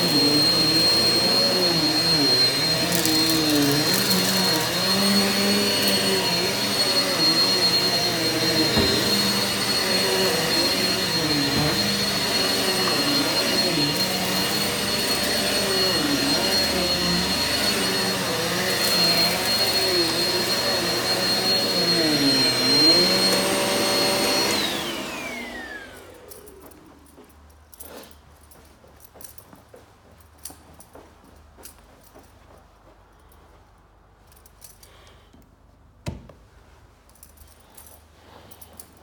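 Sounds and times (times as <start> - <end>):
vacuum motor spinning down: 0.0 - 26.6
vacuum cleaner running on carpet: 0.0 - 27.1.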